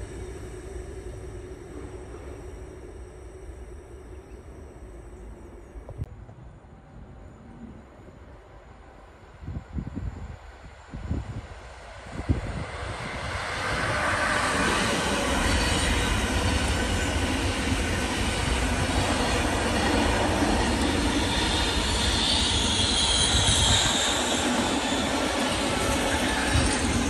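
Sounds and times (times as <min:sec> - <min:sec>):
train wheels rumbling on rail: 0:09.4 - 0:27.0
high-pitched wheel squeal: 0:21.2 - 0:27.0.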